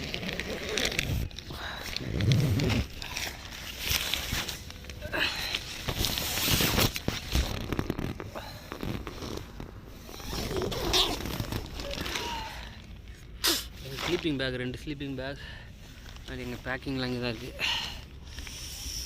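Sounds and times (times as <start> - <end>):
tent zipper rasping: 0.0 - 4.5, 6.0 - 12.2.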